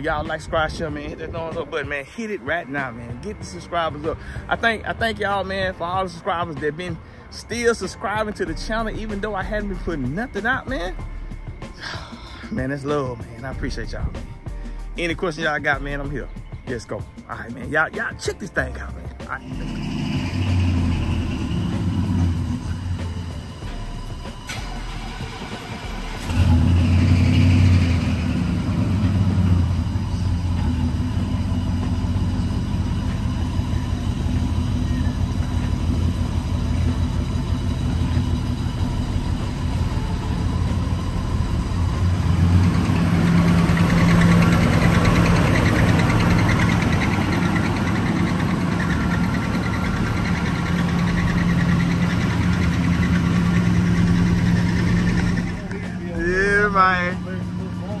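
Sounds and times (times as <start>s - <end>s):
eight-cylinder engine running: 18.8s - 58.0s.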